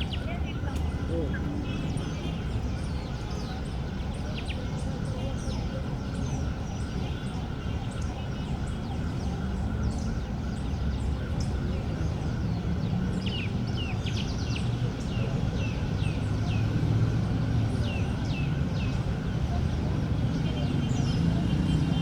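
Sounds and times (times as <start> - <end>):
low park background rumble: 0.0 - 22.0.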